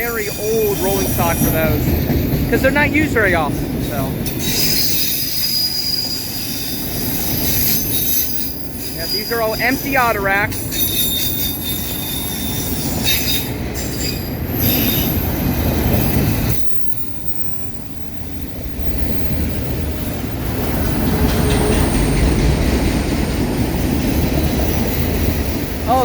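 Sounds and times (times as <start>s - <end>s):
train wheels rumbling on rail: 0.0s - 26.0s
high-pitched wheel squeal: 4.2s - 9.9s, 10.5s - 15.3s.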